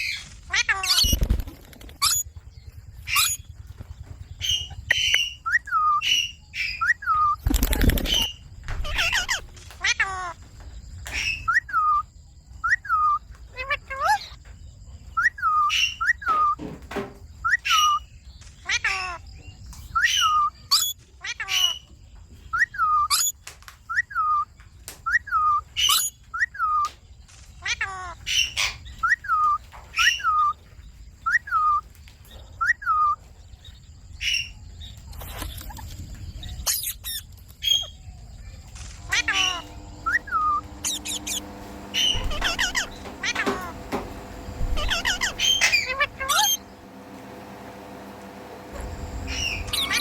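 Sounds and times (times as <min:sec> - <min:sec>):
parakeet chirping: 0:00.0 - 0:01.4, 0:02.0 - 0:10.4, 0:11.0 - 0:14.4, 0:15.1 - 0:16.6, 0:18.6 - 0:19.2, 0:25.3 - 0:26.8, 0:27.6 - 0:30.6, 0:39.0 - 0:47.2, 0:48.8 - 0:50.0
sharp high-pitched bird calls: 0:00.0 - 0:16.6, 0:17.3 - 0:47.0, 0:49.0 - 0:50.0.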